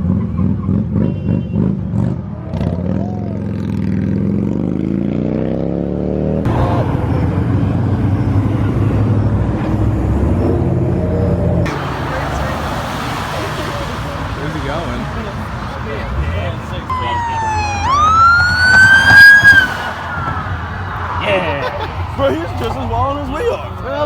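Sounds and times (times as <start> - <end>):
car engine accelerating: 5.6 - 24.0.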